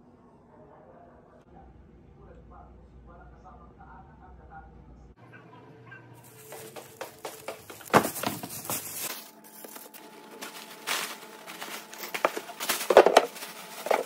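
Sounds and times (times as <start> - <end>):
plastic bag rustling and crinkling: 6.2 - 14.0.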